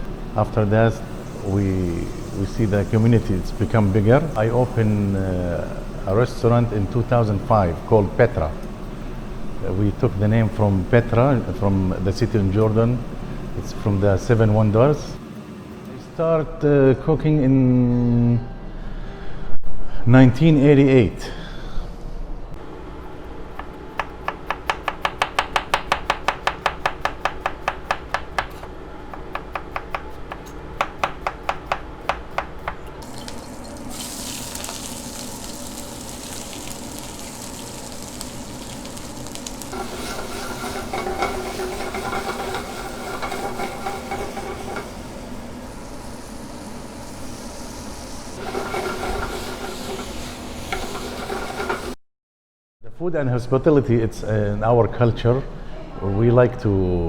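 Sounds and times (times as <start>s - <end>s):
food sizzling in a pan: 1.0s - 8.3s, 33.0s - 52.0s.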